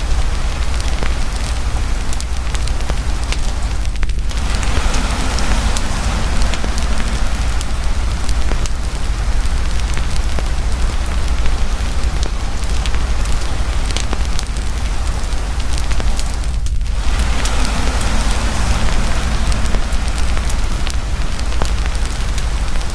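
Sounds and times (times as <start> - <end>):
campfire crackling and popping: 0.0 - 22.9
deep steady rumble: 0.0 - 22.9
heavy rain falling: 0.0 - 22.9.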